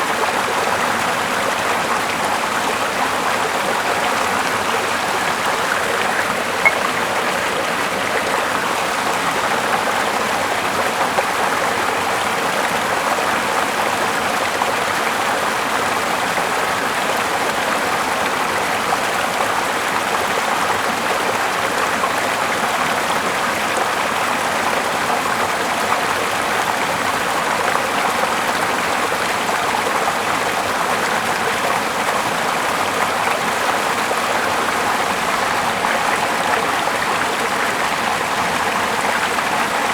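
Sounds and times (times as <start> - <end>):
river flowing: 0.4 - 12.6
brief click: 6.2 - 7.0.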